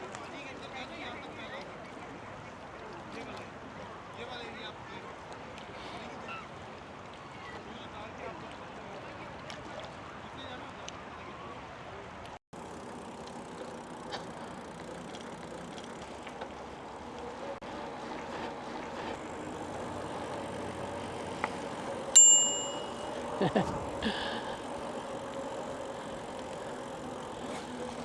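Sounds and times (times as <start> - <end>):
bike rolling and wind noise: 12.2 - 28.0
bicycle bell ding: 22.1 - 23.5.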